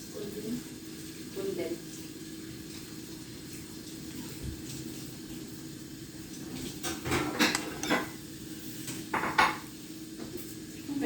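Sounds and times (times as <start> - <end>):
kitchen items knocking and clinking: 6.8 - 8.2, 9.1 - 9.6.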